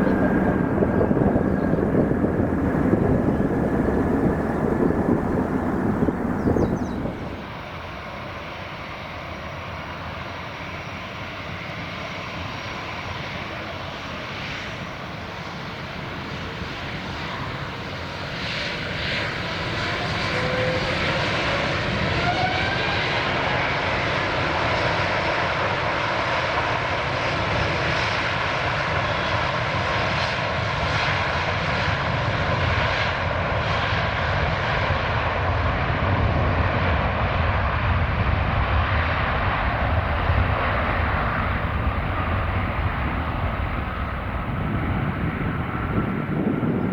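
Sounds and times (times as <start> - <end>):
faint rising engine whine: 0.0 - 11.7, 12.7 - 23.1, 38.2 - 46.9
jet engines at takeoff power: 0.0 - 46.9.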